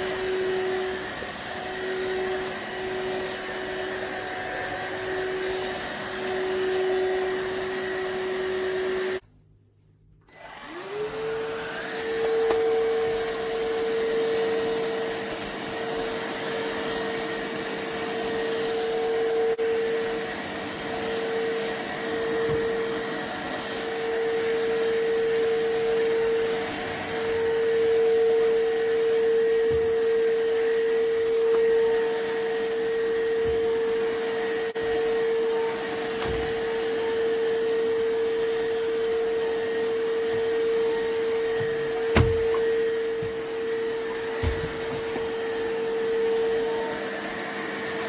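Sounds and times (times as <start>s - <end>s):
stick vacuum motor whining: 10.3s - 48.0s.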